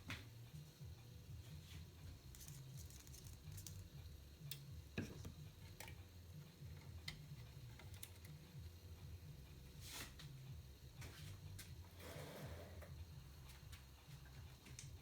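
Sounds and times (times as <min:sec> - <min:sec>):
steady low hum: 0:00.0 - 0:15.0
small parts and tools clicking: 0:06.8 - 0:08.4.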